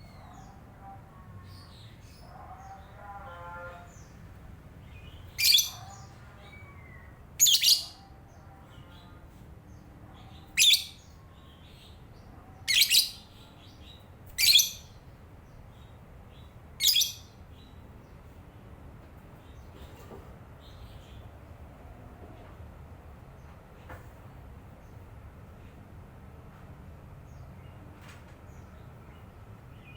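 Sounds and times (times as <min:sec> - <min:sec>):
lovebird twittering: 0:05.3 - 0:08.0, 0:10.6 - 0:11.0, 0:12.7 - 0:13.2, 0:14.4 - 0:14.9, 0:16.8 - 0:17.2
lovebird shrill calls: 0:05.4 - 0:05.9, 0:07.4 - 0:08.0, 0:12.7 - 0:13.2, 0:14.4 - 0:14.9, 0:16.8 - 0:17.2.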